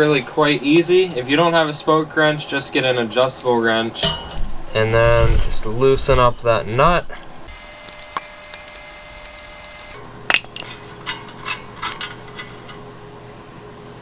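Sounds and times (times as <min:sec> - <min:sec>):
wrench clicking on spoke nipple: 0:07.5 - 0:10.0.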